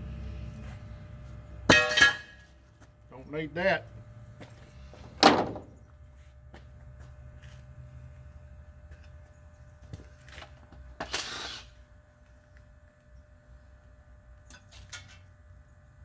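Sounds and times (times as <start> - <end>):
object set down with clunk: 5.1 - 5.8.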